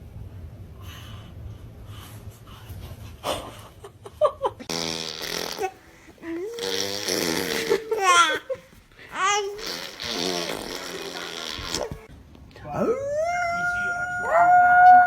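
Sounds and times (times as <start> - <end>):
steady low hum: 0.0 - 14.8
people laughing: 7.4 - 8.8.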